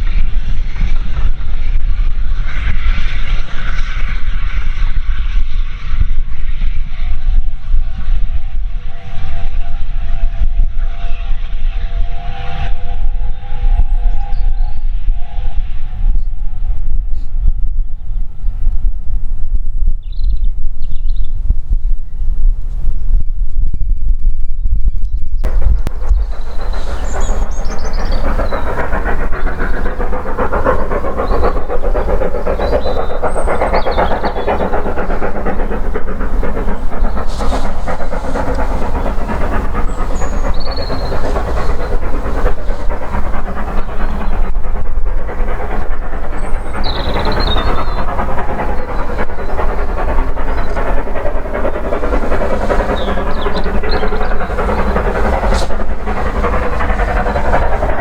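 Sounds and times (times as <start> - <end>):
train wheels clattering on rail: 25.4 - 58.0.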